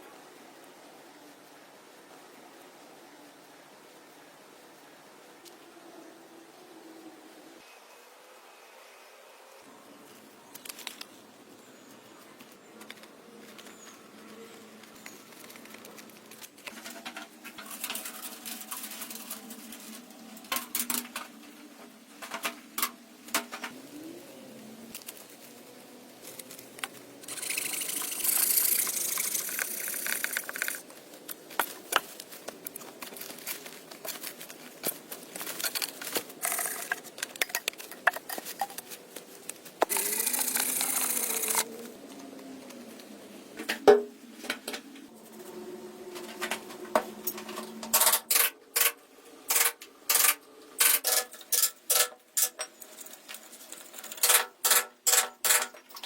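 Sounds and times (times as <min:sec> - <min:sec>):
scraping hiss: 0:26.2 - 0:37.2.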